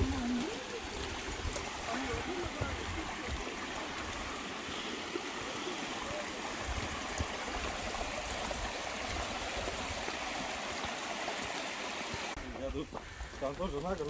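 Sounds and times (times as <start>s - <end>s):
stream rushing over rocks: 0.0s - 12.7s.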